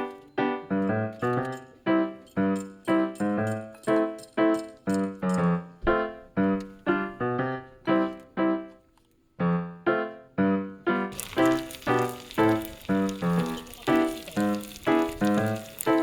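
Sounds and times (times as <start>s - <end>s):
slow piano music: 0.0s - 16.0s
steady sizzling hiss: 11.1s - 16.0s.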